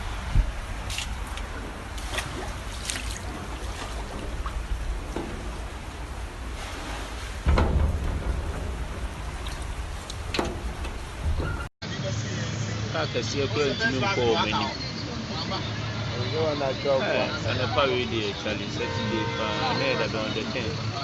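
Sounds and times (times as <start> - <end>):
rain hiss: 0.0 - 11.4
floodwater rumble: 0.0 - 21.0
small water splashes: 0.6 - 11.3.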